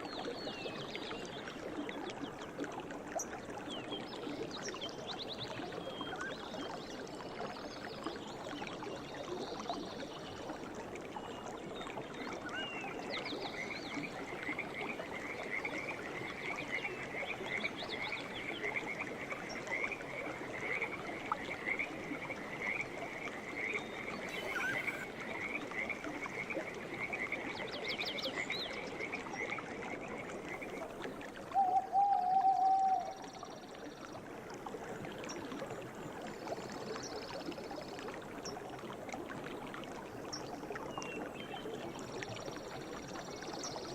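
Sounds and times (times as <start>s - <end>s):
stream running: 0.0s - 43.9s
short bird chirps: 24.3s - 25.1s.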